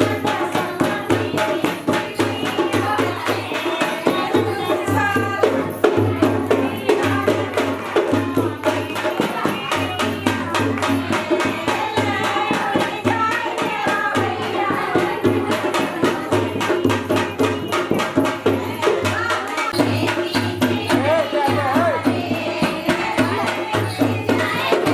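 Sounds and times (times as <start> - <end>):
fast steady percussion: 0.0 - 24.9
person singing folk song: 18.5 - 24.9.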